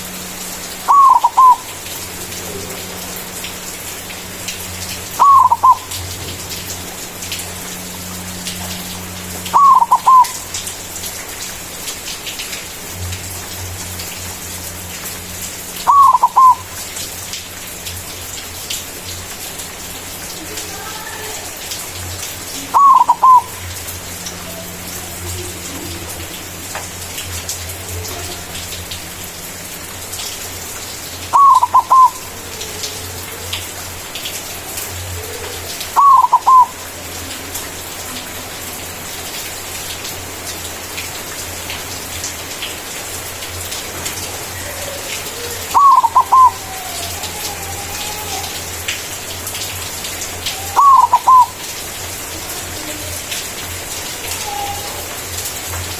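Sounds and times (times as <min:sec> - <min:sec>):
dove cooing: 0:00.9 - 0:01.7, 0:05.2 - 0:06.0, 0:09.5 - 0:10.5, 0:15.8 - 0:16.7, 0:22.6 - 0:23.8, 0:31.3 - 0:33.6, 0:35.0 - 0:37.2, 0:44.4 - 0:48.6, 0:50.5 - 0:51.6, 0:54.3 - 0:55.1.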